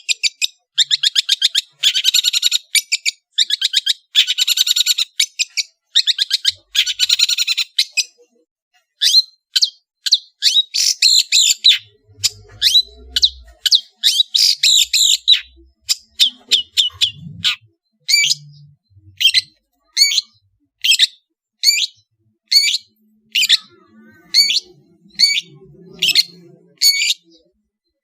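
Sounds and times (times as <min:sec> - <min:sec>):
shrike singing: 0:10.4 - 0:27.6.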